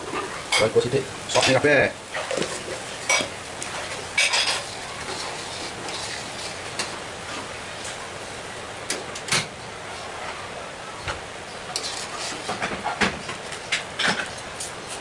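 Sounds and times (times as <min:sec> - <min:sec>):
utensils clinking on cookware: 0:03.0 - 0:03.3, 0:04.1 - 0:06.5, 0:11.7 - 0:12.5.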